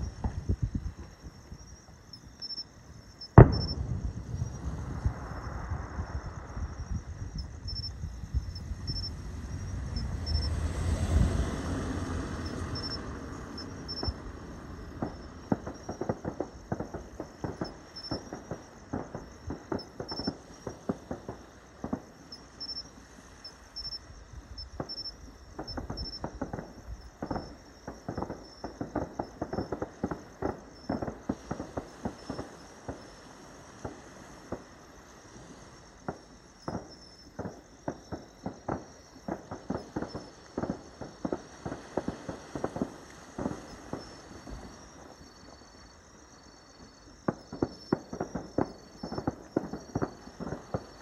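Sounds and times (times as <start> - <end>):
fireworks crackling pops: 0.0 - 2.6, 3.2 - 51.0
firework boom: 3.3 - 22.1.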